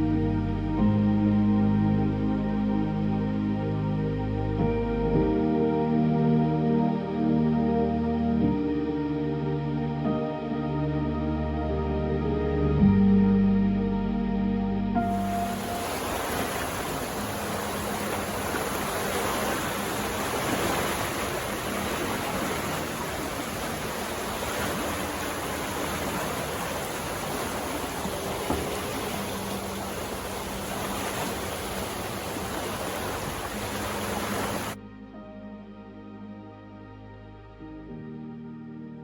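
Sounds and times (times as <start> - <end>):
faint background music: 0.0 - 39.0
rushing water noise: 15.0 - 34.8.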